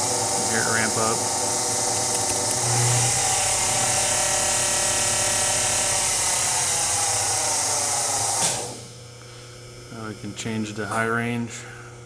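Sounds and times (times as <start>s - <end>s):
lathe motor whining: 0.0s - 8.9s.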